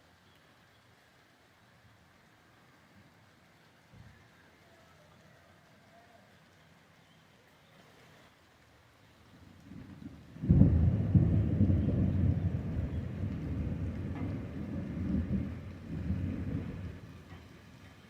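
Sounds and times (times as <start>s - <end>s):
thunder rumble and crack: 9.6s - 17.3s.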